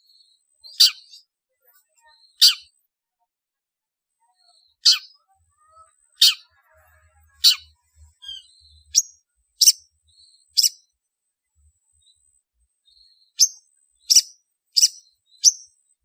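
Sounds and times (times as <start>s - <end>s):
harsh bird calls: 0.7s - 1.2s, 2.2s - 2.7s, 4.8s - 9.8s, 13.3s - 15.7s.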